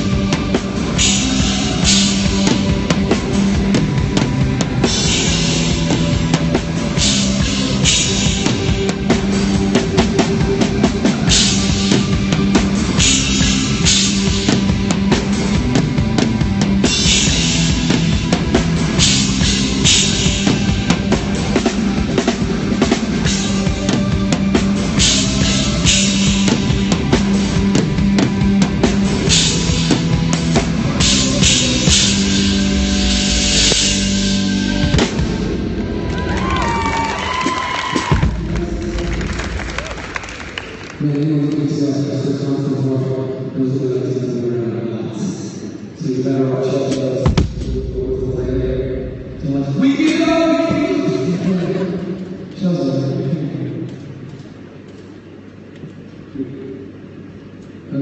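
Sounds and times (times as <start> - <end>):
cymbal crashes: 0.0 - 35.9
drum kit hits: 0.0 - 36.0, 47.2 - 51.0
held bass notes: 0.0 - 36.8
rock band playing live: 0.0 - 39.9.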